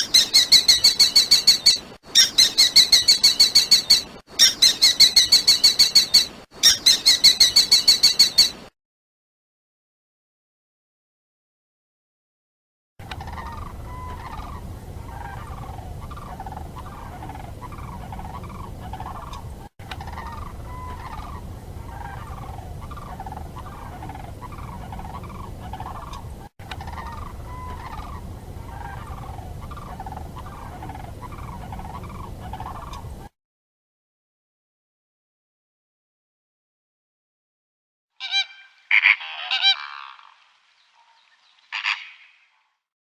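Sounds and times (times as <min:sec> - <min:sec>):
turkey gobbling: 0:00.0 - 0:08.5, 0:13.0 - 0:33.2, 0:38.2 - 0:40.4, 0:41.0 - 0:42.5
low rumble: 0:13.0 - 0:33.3.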